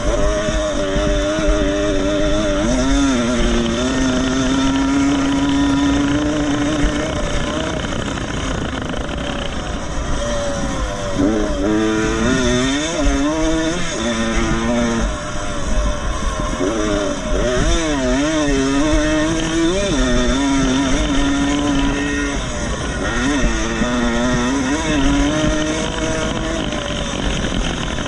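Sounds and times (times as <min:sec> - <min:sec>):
motocross bike engines revving: 0:00.0 - 0:28.0
wind rumble on microphone: 0:00.0 - 0:28.0.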